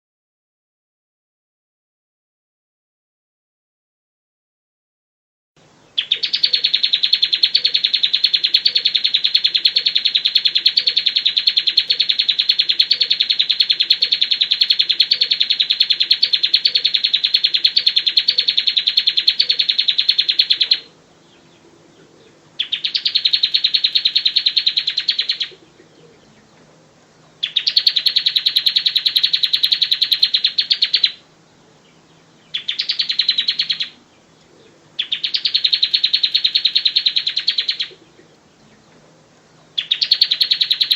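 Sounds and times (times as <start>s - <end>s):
bird singing rapid trills: 5.7s - 40.9s.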